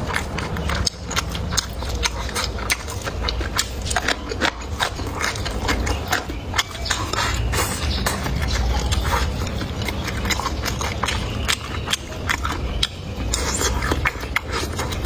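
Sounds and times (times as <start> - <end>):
chewing and mouth smacking: 0.0 - 15.0.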